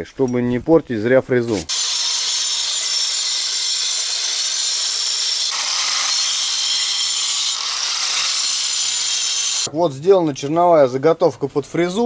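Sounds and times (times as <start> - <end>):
angle grinder cutting brick: 1.5 - 9.7.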